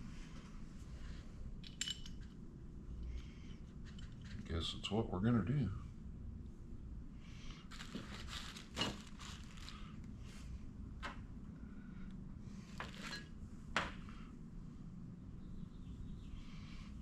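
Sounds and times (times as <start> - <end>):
steady low hum: 0.0 - 17.0
rustling: 7.7 - 10.0.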